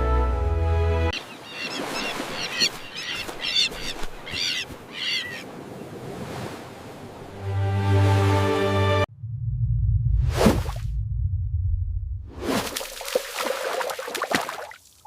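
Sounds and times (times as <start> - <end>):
background music: 0.0 - 1.2, 7.4 - 9.1
terns calling: 1.2 - 5.6.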